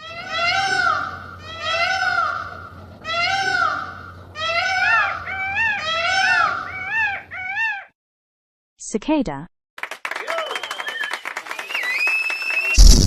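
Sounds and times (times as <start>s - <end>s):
peacock calling: 4.4s - 7.9s.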